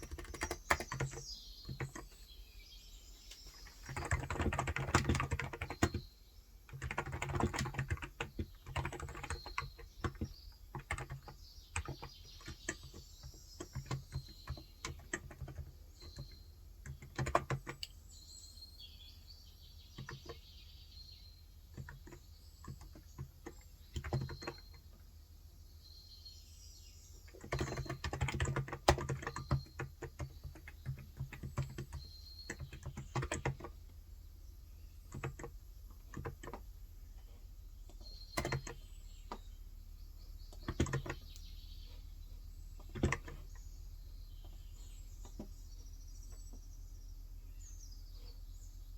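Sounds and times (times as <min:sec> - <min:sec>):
soft keyboard typing: 0:00.0 - 0:02.3, 0:03.2 - 0:06.1, 0:06.7 - 0:18.0, 0:19.9 - 0:20.4, 0:21.7 - 0:25.1, 0:27.2 - 0:34.0, 0:34.8 - 0:39.5, 0:40.4 - 0:42.0, 0:42.7 - 0:43.6, 0:44.4 - 0:46.6
birds chirping faintly: 0:00.0 - 0:48.9.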